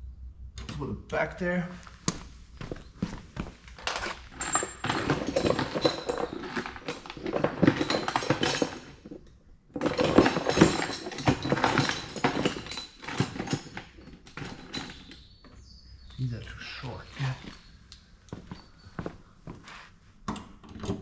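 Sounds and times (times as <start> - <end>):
metal bolts clattering: 3.8 - 9.0, 9.8 - 15.3.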